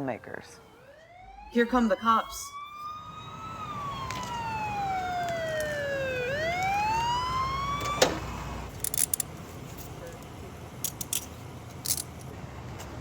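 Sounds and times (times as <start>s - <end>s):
police siren wailing: 0.0s - 8.7s.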